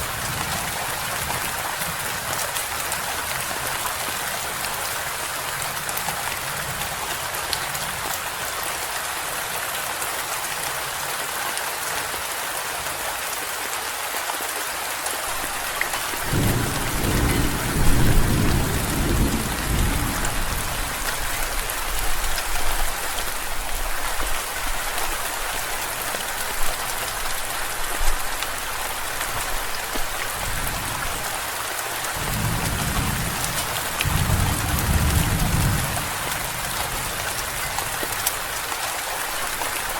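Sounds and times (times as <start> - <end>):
heavy rain falling: 0.0 - 39.9
deep roll of thunder: 16.3 - 21.0, 32.2 - 36.6.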